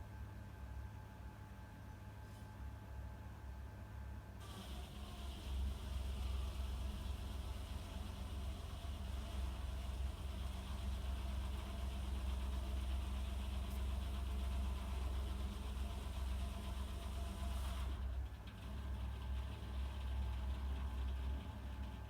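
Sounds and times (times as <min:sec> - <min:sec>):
tractor engine running: 0:04.4 - 0:22.0.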